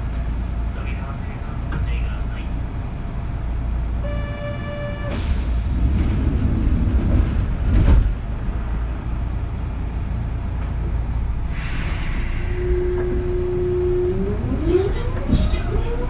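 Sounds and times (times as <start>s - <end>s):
electric train running rumble: 0.0s - 16.0s
steady tone: 11.4s - 16.0s
sharp air hiss: 11.5s - 12.6s.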